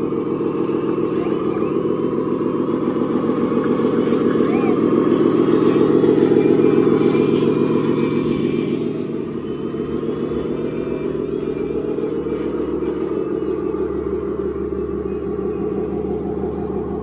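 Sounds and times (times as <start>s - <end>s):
model machine motor drone: 0.0s - 17.0s.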